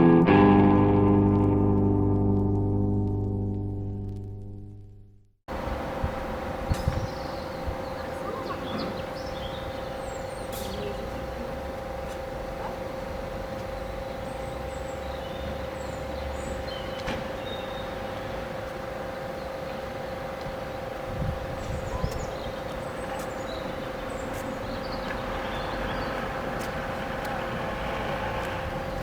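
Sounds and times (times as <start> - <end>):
mid-pitched hum: 0.0 - 16.7
low rumble: 0.3 - 6.2.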